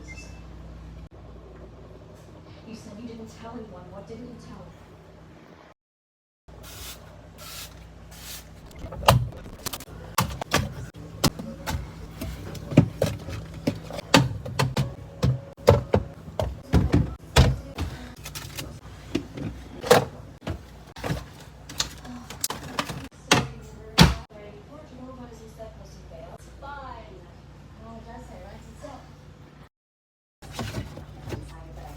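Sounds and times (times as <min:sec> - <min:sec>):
containers clicking and knocking: 0:09.7 - 0:23.6.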